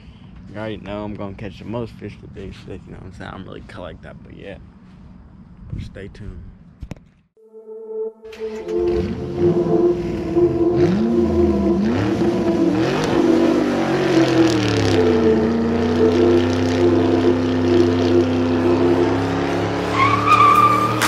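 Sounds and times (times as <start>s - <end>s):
high wavering tone: 7.4s - 20.9s
car engine revving: 8.3s - 21.0s.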